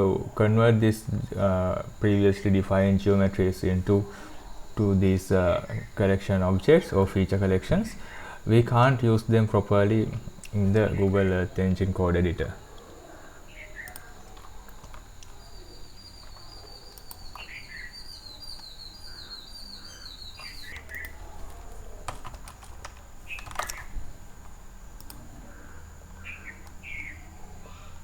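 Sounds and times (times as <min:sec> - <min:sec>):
birds chirping: 0:10.6 - 0:22.1, 0:25.5 - 0:27.4
sharp clicks: 0:13.8 - 0:19.3, 0:20.3 - 0:23.9, 0:25.0 - 0:25.2.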